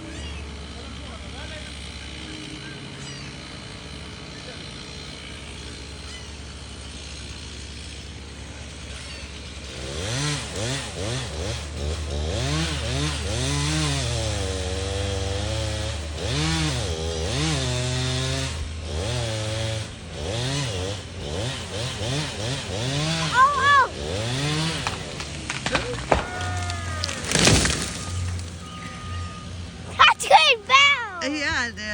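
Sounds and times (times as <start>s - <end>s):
chainsaw cutting timber: 0.0s - 31.7s
low engine hum: 22.6s - 31.9s.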